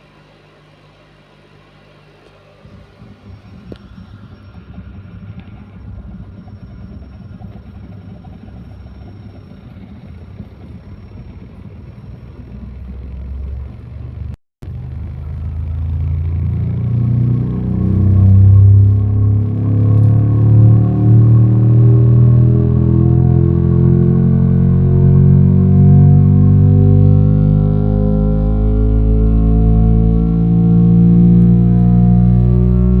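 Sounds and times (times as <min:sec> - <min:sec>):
deep bass through subwoofer: 0:02.6 - 0:33.0.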